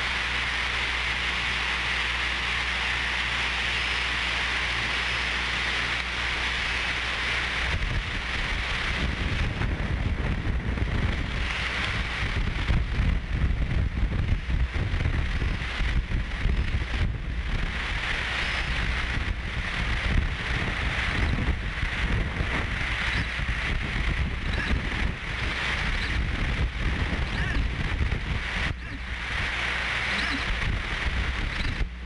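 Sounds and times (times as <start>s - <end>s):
rain-like hiss: 0.0s - 31.9s
low electrical hum: 0.0s - 32.0s
wind buffeting microphone: 6.5s - 32.0s.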